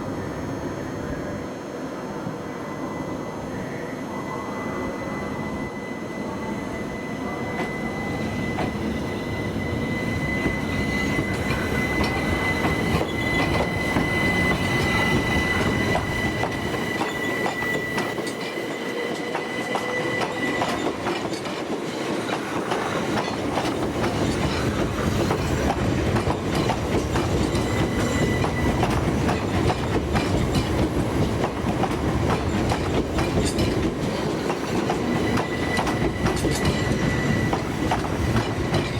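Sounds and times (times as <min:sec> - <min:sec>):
high wheel squeal: 0:02.9 - 0:22.0, 0:27.2 - 0:29.3, 0:34.1 - 0:38.9
train wheels clicking over rail joints: 0:10.0 - 0:38.9.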